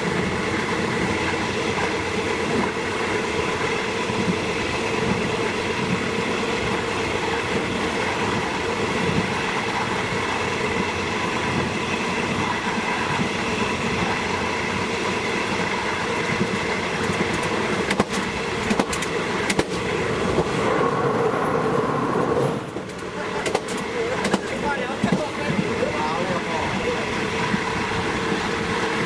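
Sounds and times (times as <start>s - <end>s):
train rumble: 0.0s - 29.0s
wheels clicking over rail joints: 16.3s - 20.5s.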